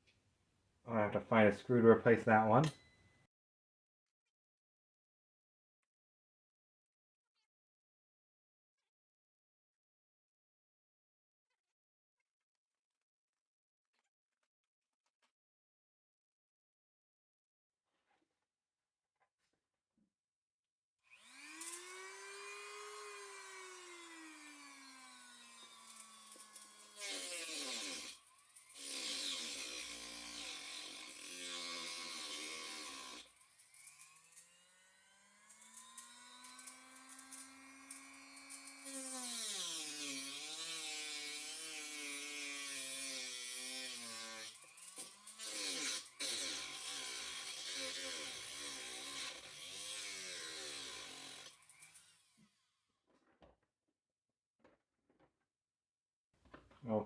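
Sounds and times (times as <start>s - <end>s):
power tool motor whining: 21.1s - 52.5s.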